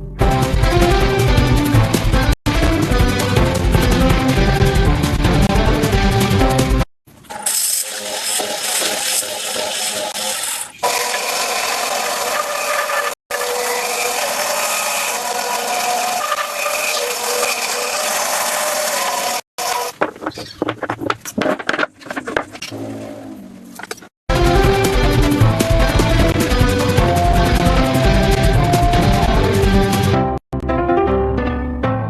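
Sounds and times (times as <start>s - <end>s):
woodworking tools scraping wood: 8.0s - 24.1s.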